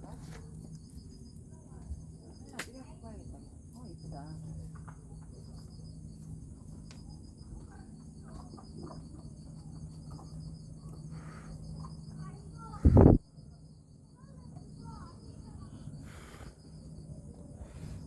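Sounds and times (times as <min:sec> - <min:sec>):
crickets chirring: 0:00.0 - 0:18.0.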